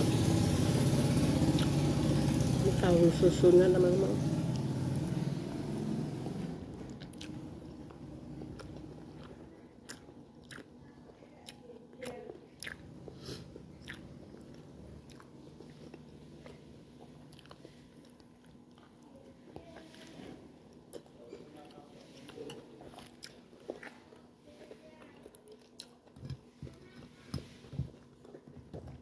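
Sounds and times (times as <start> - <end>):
chewing and biting food: 6.7 - 19.9, 20.7 - 24.4, 25.2 - 29.0.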